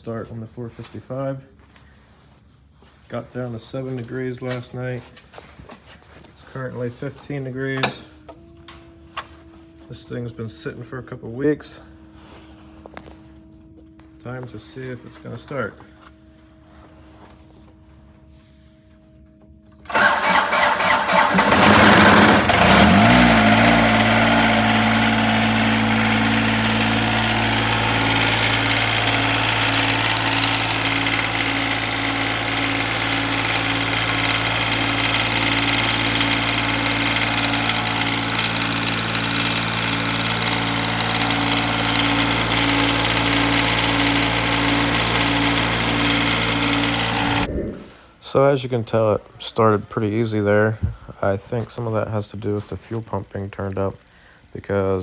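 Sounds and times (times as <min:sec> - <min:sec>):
diesel engine starting and idling: 0:19.8 - 0:48.0
starter motor cranking: 0:19.9 - 0:47.5.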